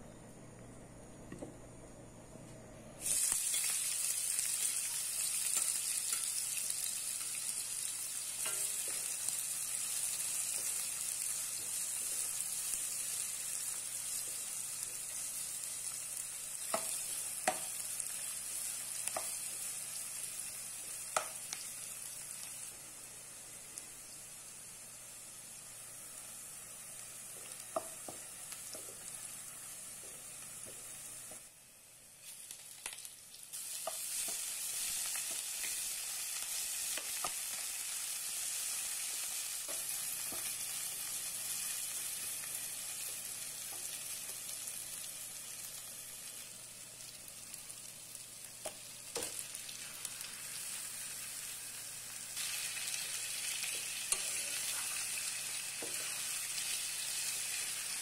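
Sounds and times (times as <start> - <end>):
onions sizzling in oil: 3.0 - 58.0
spoon stirring and tapping pan: 8.3 - 9.2, 16.6 - 17.8, 19.0 - 19.6, 21.1 - 21.7, 27.3 - 29.1, 55.7 - 56.3.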